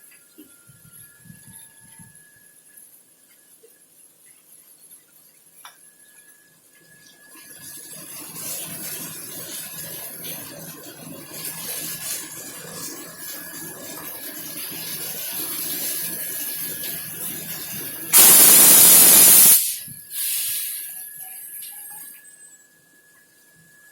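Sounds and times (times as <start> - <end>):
rail yard noise: 7.5 - 22.9
train air brake hiss: 18.1 - 21.9.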